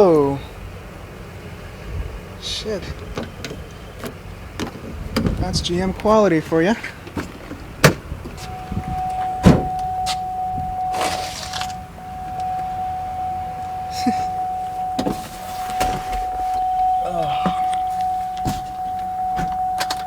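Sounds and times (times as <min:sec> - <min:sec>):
rustling handling noise: 0:08.3 - 0:20.0
car electronic warning tone: 0:08.4 - 0:20.0.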